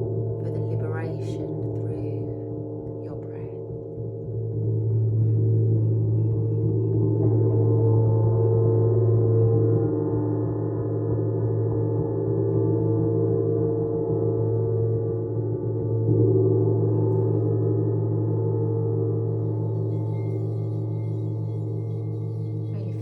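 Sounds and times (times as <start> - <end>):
gong drone: 12.0 - 23.0.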